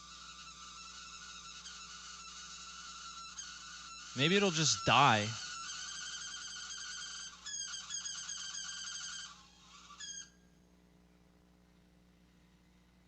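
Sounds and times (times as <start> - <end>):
cooler fan squealing: 0.0 - 10.4.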